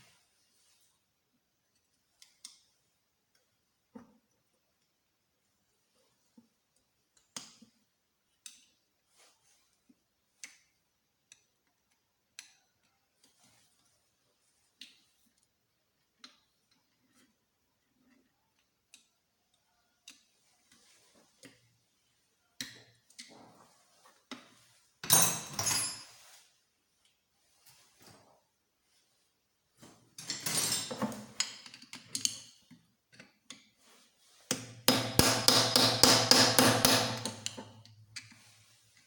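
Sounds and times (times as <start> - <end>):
clatter of metal parts: 30.2 - 32.5.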